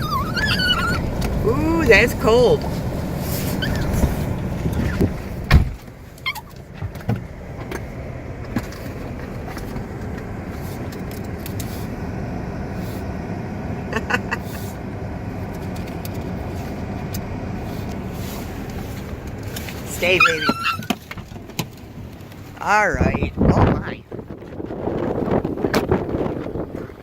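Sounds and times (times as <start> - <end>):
short squeaks: 0.0 - 1.4, 3.2 - 5.2, 6.2 - 6.7, 20.0 - 21.1
blizzard wind rushing: 0.0 - 5.8, 22.9 - 27.0
thump: 5.5 - 5.8.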